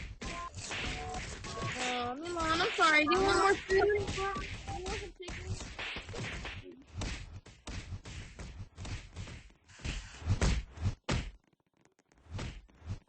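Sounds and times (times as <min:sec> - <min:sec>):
irregular thumps and knocks: 0:00.0 - 0:13.0.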